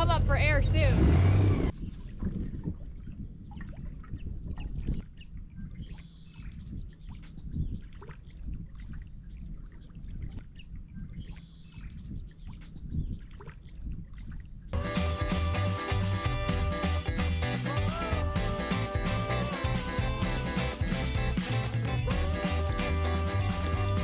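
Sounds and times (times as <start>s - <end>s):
steady low rumble: 0.0s - 1.8s, 14.8s - 24.0s
water sloshing and trickling: 1.7s - 14.8s.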